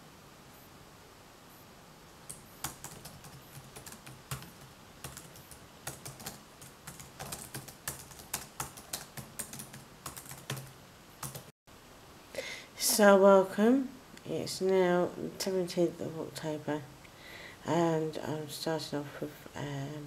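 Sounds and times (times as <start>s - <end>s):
computer keyboard typing: 2.3s - 11.5s.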